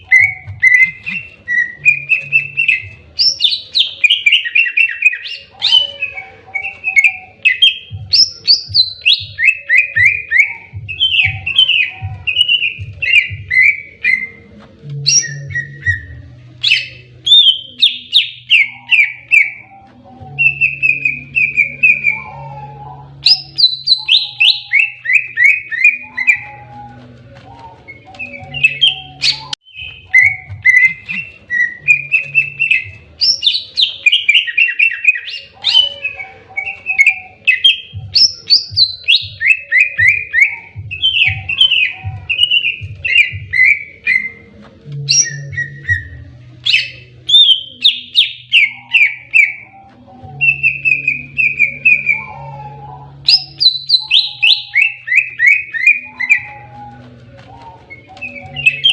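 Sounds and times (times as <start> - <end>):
bird singing whistled phrases: 0.0 - 14.4, 15.0 - 58.9.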